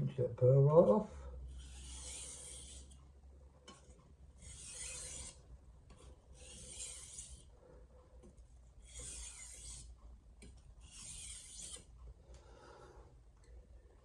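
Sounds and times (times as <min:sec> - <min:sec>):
knife blade scraping on whetstone: 0:01.6 - 0:03.0, 0:03.7 - 0:07.5, 0:08.8 - 0:09.9, 0:10.8 - 0:11.9.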